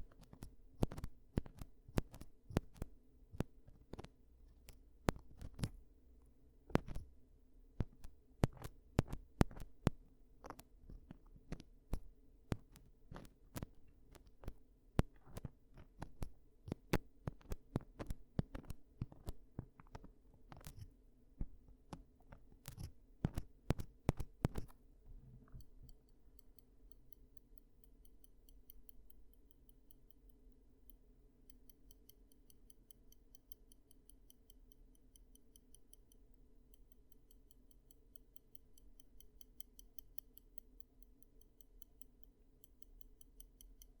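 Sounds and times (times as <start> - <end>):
faint high-pitched ticking: 22.3 - 44.0.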